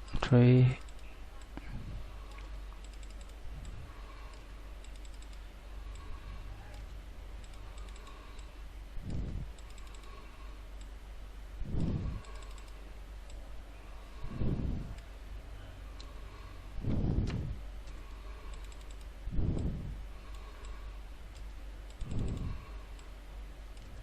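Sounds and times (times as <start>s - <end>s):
low steady hum: 0.0s - 24.0s
keyboard typing: 2.3s - 10.2s, 11.8s - 13.4s, 17.8s - 23.1s
muffled low thumps: 9.0s - 9.6s, 16.8s - 17.6s, 19.3s - 20.0s.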